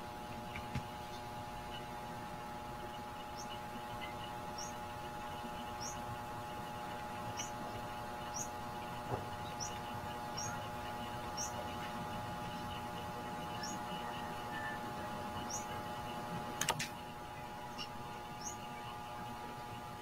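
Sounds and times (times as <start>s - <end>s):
steady hum of held tones: 0.0s - 20.0s
bird chirping: 3.2s - 4.8s, 5.6s - 6.0s, 7.3s - 8.6s, 9.4s - 11.7s, 12.4s - 15.8s, 17.4s - 19.0s
sharp click: 16.6s - 16.9s.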